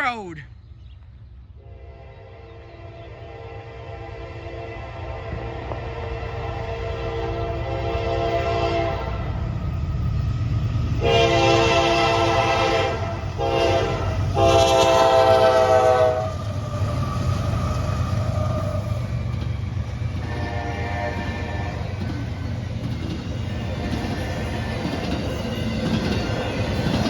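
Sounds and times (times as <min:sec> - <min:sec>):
passing train rumble: 0:01.1 - 0:27.0
faint horn blast: 0:01.6 - 0:09.2, 0:11.0 - 0:16.4, 0:20.3 - 0:21.8
locomotive horn blasts: 0:03.2 - 0:09.2, 0:11.0 - 0:16.4, 0:20.2 - 0:21.8.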